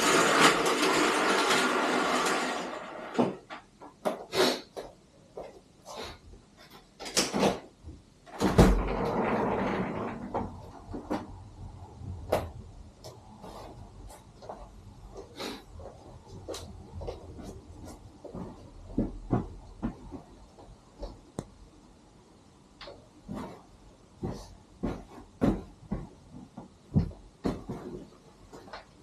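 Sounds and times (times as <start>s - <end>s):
heavy thump: 24.2s - 28.0s.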